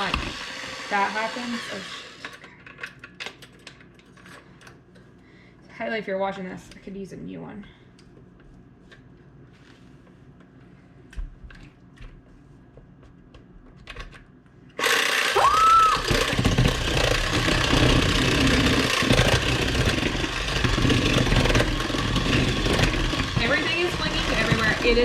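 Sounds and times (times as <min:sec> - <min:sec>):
electric mixer running: 0:00.0 - 0:02.3, 0:14.8 - 0:25.0.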